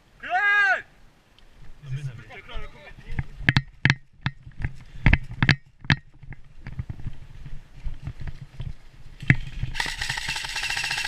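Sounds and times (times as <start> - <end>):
footsteps on rough ground: 2.9 - 10.1
electric gun firing full auto: 9.8 - 11.0.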